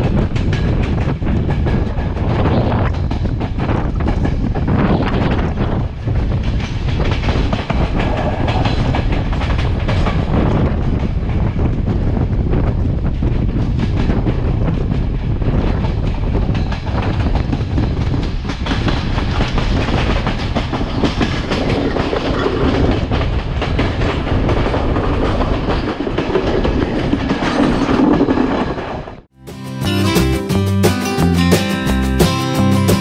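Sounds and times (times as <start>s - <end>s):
wheels clattering over rail joints: 0.0s - 29.3s
train rumble: 0.0s - 33.0s.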